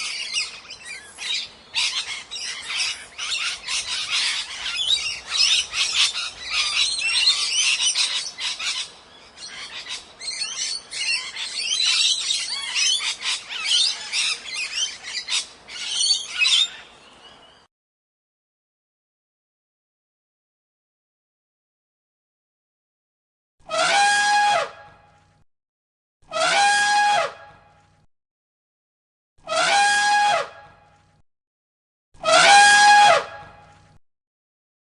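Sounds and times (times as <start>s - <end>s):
parrots squawking and chattering: 0.0s - 16.8s.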